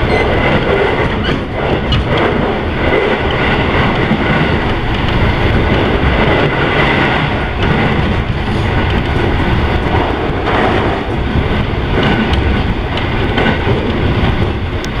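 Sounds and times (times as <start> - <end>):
train wheels rumbling on rails: 0.0 - 15.0
faint track clicks: 12.0 - 14.0, 14.8 - 15.0.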